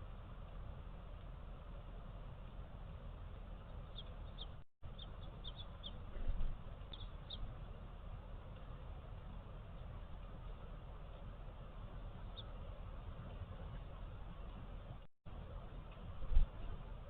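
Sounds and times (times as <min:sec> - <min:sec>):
small birds chirping: 0:00.0 - 0:15.1
steady outdoor hiss: 0:00.0 - 0:17.0.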